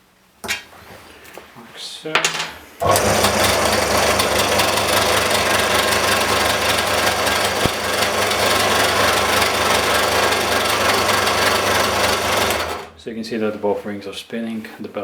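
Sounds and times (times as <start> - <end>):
electric belt sander running: 2.8 - 12.9.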